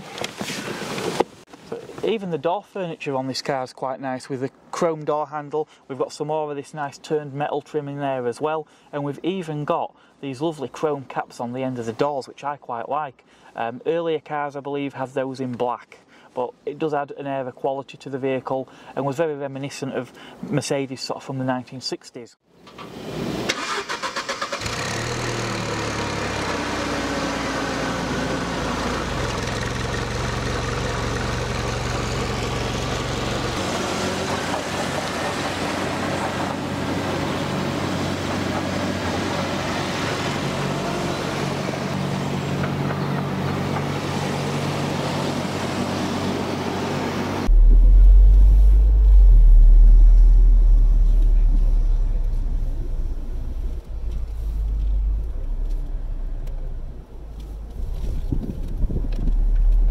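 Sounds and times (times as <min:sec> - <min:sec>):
car engine starting and running: 0:22.8 - 0:36.8, 0:47.4 - 0:59.9
deep rumble: 0:47.4 - 0:59.9.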